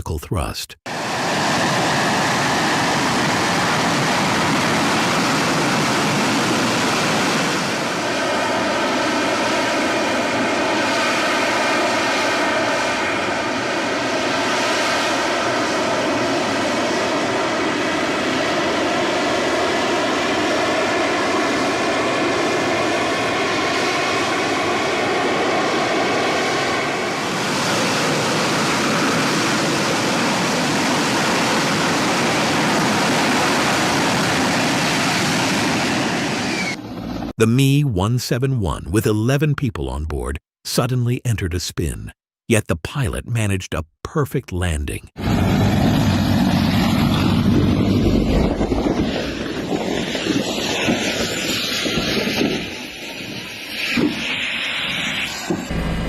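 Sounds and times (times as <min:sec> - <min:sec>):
jet engine roaring: 0:00.9 - 0:37.3, 0:45.2 - 0:56.0
whining tones: 0:55.7 - 0:56.0.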